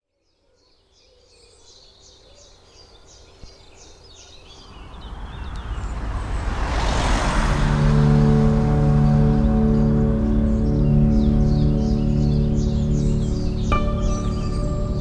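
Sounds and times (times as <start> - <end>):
rush of noise: 4.7 - 15.0
bird singing high notes: 7.5 - 15.0.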